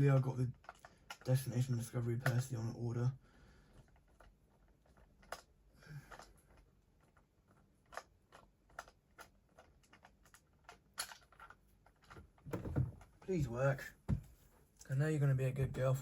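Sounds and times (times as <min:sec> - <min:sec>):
clicks and taps of plastic toys: 0:00.5 - 0:02.8, 0:03.8 - 0:13.4.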